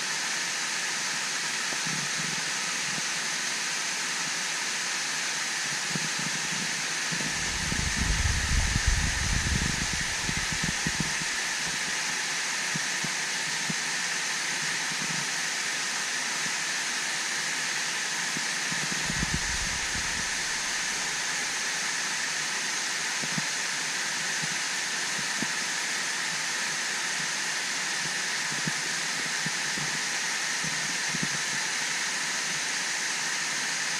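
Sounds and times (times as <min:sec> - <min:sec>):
waterfall rushing hiss: 0:00.0 - 0:33.9.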